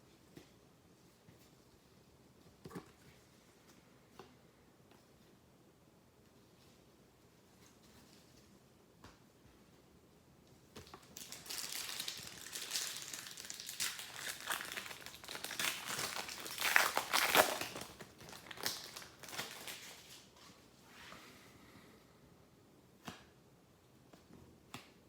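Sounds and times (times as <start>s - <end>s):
foil wrapper crinkling: 10.9s - 20.3s.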